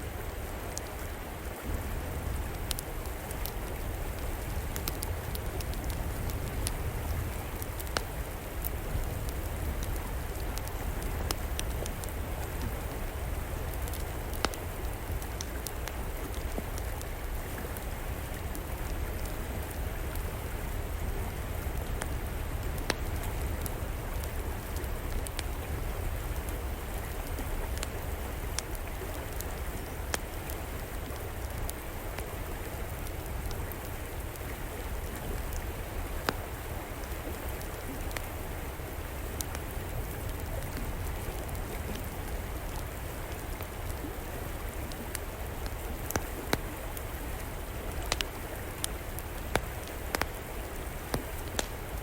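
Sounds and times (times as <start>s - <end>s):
river flowing: 0.0s - 52.0s
wood fire popping: 1.6s - 20.3s, 20.9s - 29.5s, 39.3s - 52.0s.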